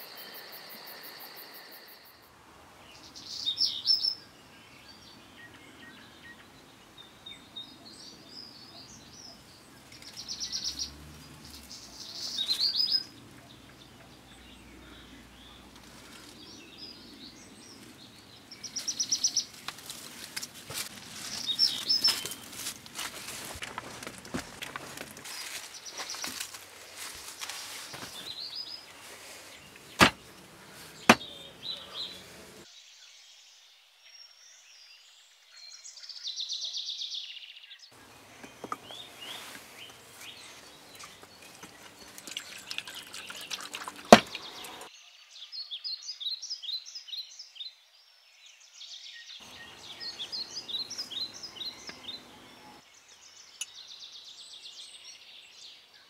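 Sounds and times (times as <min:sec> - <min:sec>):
birds chirping: 0:00.0 - 0:32.7, 0:35.7 - 0:44.9, 0:49.3 - 0:56.0
noisy outdoor background: 0:00.0 - 0:56.0
sharp knocks: 0:30.0 - 0:30.2.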